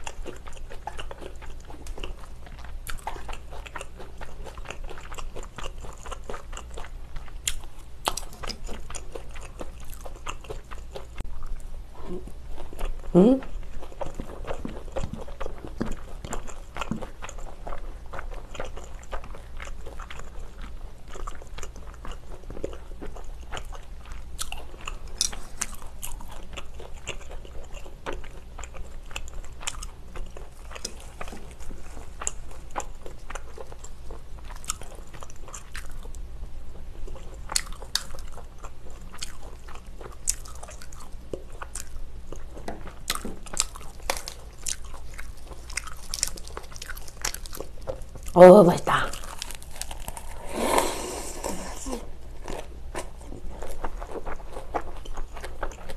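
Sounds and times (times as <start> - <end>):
person chewing food: 0.0 - 48.5, 49.1 - 55.9
crunching lettuce bites: 43.0 - 48.4, 49.1 - 55.9.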